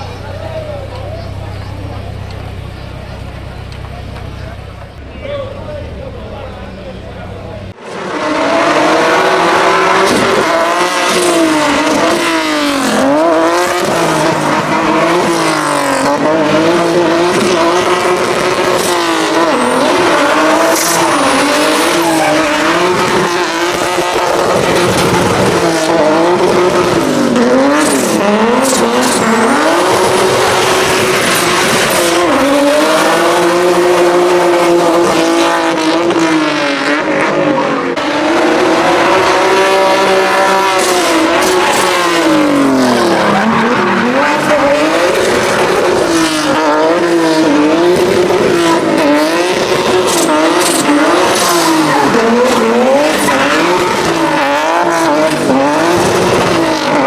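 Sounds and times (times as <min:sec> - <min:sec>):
rally car engine revving: 0:00.0 - 0:57.0
tyres squealing: 0:11.2 - 0:26.7, 0:39.8 - 0:46.3.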